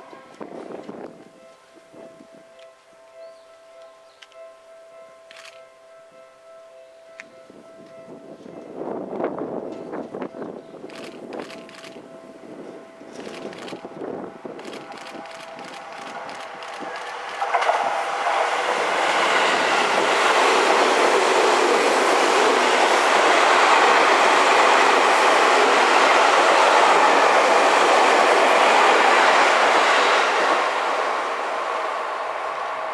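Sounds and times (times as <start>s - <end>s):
train wheels rumbling on rails: 13.1s - 32.9s.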